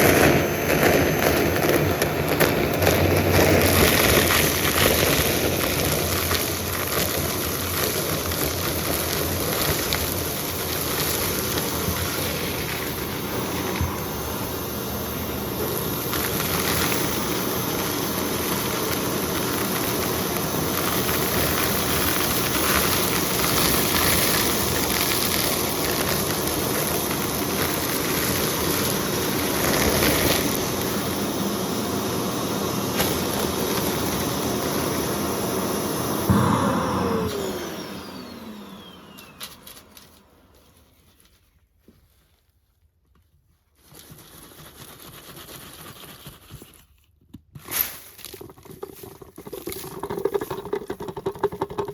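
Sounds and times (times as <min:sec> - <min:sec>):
motor whine spinning down: 0:00.0 - 0:06.7, 0:09.6 - 0:26.4, 0:30.5 - 0:40.8
debris crackling in vacuum: 0:00.0 - 0:31.3, 0:36.2 - 0:41.0
vacuum cleaner running: 0:00.0 - 0:41.2.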